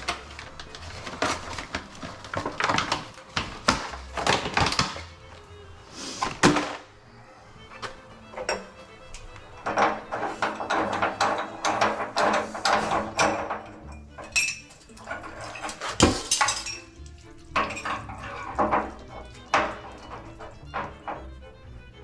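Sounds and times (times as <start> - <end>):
music: 0.0 - 22.0
hard objects clinking on metal: 8.4 - 21.3.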